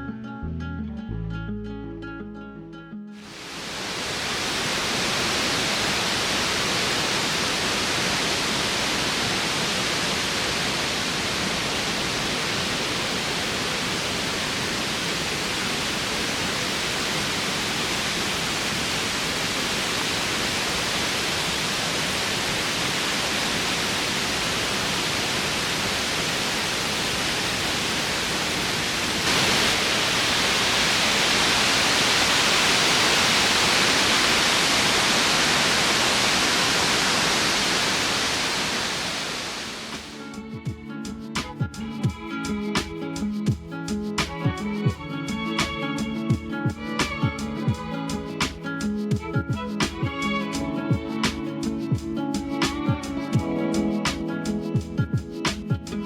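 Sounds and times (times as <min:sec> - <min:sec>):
waterfall water rushing: 0:03.2 - 0:40.2.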